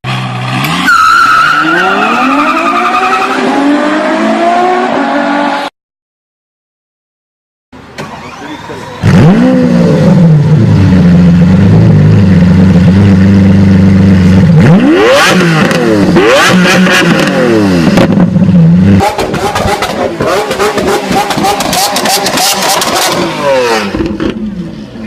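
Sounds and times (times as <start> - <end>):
car engine idling and revving: 7.8 - 25.0.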